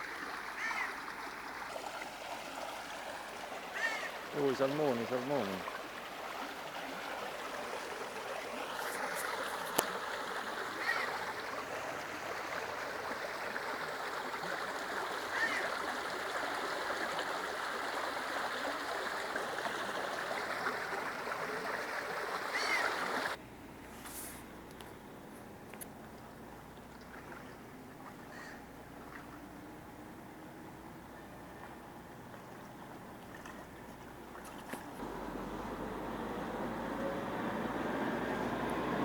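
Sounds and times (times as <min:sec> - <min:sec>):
stream water rushing: 0:00.0 - 0:23.4, 0:33.0 - 0:39.0.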